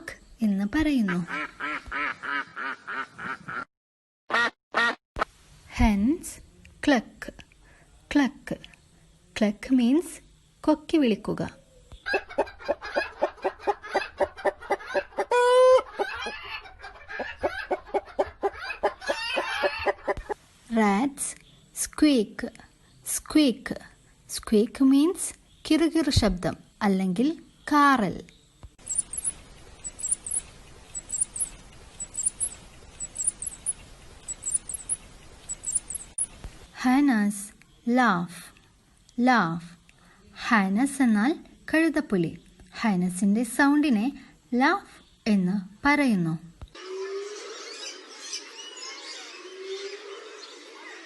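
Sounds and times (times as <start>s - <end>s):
hens clucking: 12.0s - 20.4s
rat squeaking: 28.8s - 36.4s.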